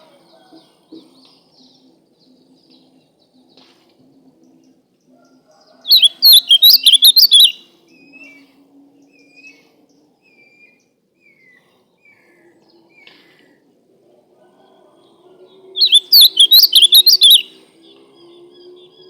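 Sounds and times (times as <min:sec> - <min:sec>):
bird warbling song: 0:04.3 - 0:08.4, 0:15.8 - 0:19.0
faint whistled bird notes: 0:05.6 - 0:08.4, 0:15.8 - 0:19.0.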